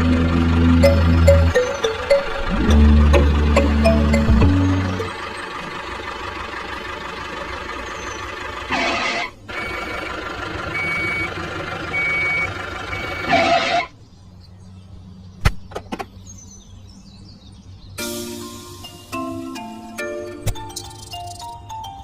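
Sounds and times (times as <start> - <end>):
reversing alarm beeping: 0.0 - 5.6, 9.6 - 10.0, 10.7 - 13.8
heavy vehicle engine running: 0.0 - 13.8.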